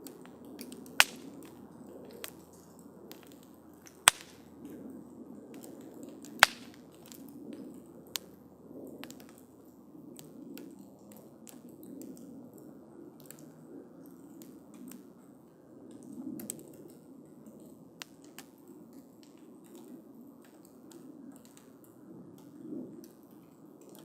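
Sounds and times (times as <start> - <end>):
campfire crackling: 0.0 - 24.0
low steady sound of flames: 0.0 - 24.0
loud sharp pops: 1.0 - 1.3, 3.9 - 4.4, 6.4 - 6.8.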